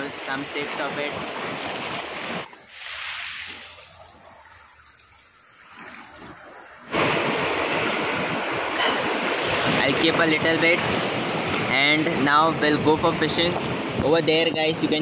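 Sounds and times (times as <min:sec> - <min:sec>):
waves washing against rocks: 0:00.0 - 0:04.6, 0:05.6 - 0:14.1
wind on microphone: 0:05.8 - 0:15.0.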